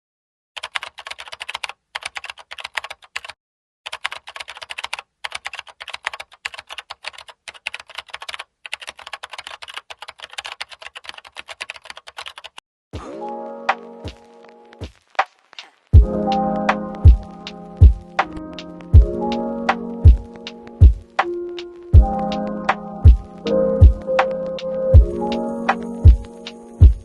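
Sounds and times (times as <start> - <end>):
computer keyboard typing: 0.6 - 12.6.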